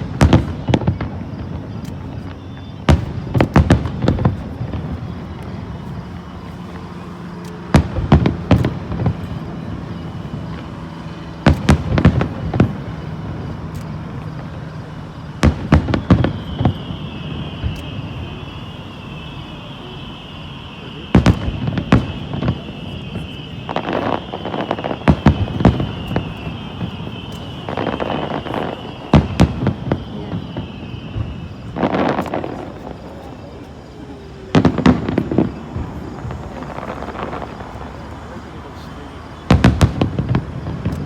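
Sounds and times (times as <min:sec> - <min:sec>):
fireworks bursting with bangs: 0:00.0 - 0:41.0
high wavering whistle: 0:15.6 - 0:39.6.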